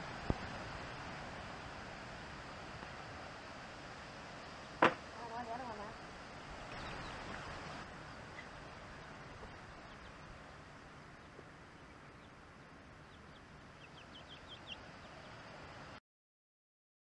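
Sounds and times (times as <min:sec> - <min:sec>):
faint outdoor hiss: 0:00.0 - 0:16.0
bird chirps: 0:06.6 - 0:12.4, 0:13.0 - 0:15.4.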